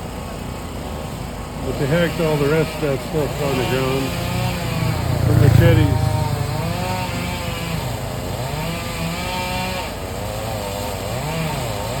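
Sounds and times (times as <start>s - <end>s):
chainsaw cutting wood: 6.5s - 12.0s.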